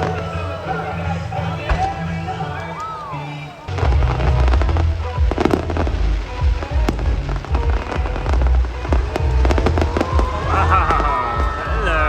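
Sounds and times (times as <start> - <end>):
music playing: 0.0 - 12.0
fireworks booming and crackling: 1.4 - 12.0.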